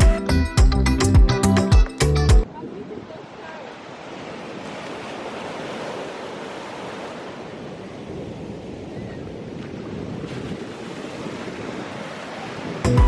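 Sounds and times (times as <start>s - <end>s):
ocean waves washing on beach: 2.4s - 12.9s
wind buffeting microphone: 7.4s - 12.0s.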